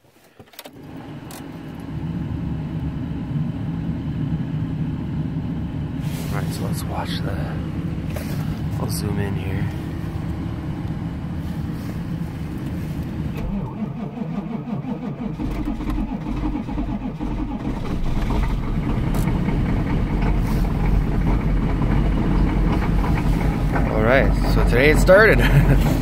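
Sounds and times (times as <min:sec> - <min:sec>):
diesel engine idling: 0:00.8 - 0:26.0
starter cranking engine: 0:11.7 - 0:26.0.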